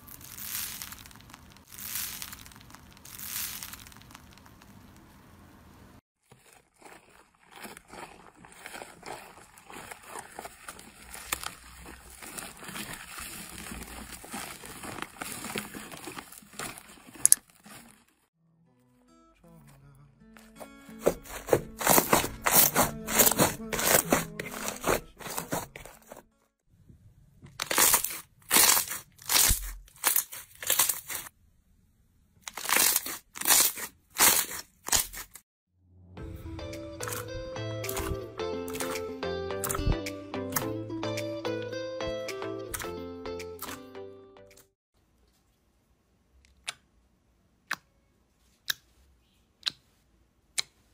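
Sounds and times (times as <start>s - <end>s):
slime crunching and crackling: 0.0s - 5.1s, 6.2s - 18.3s, 20.5s - 26.2s, 27.5s - 31.3s, 32.4s - 35.4s, 37.0s - 39.0s, 39.6s - 40.6s.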